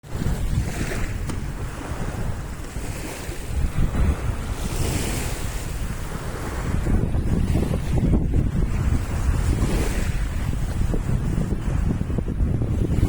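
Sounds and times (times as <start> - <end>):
choppy waves washing: 0.0 - 13.0
wind buffeting microphone: 0.0 - 13.0.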